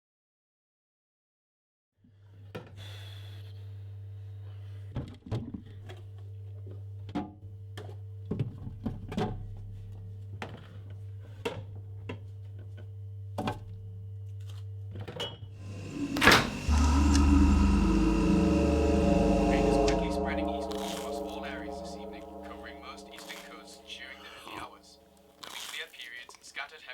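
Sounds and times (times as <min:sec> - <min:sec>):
low steady hum: 0:15.6 - 0:24.7.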